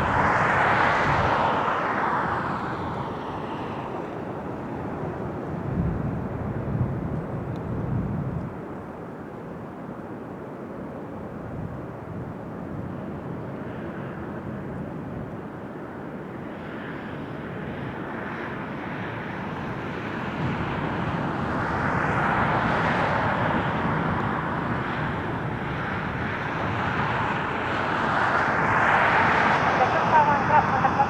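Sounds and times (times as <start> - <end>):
jet engine roar: 0.0 - 6.9, 16.8 - 31.0.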